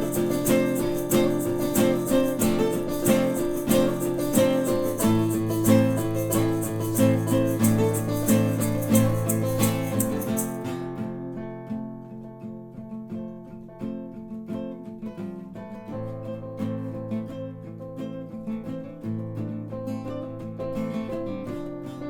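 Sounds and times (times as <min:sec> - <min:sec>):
crisp high percussive strokes: 0:00.0 - 0:10.6
guitar chords strummed: 0:00.0 - 0:12.1.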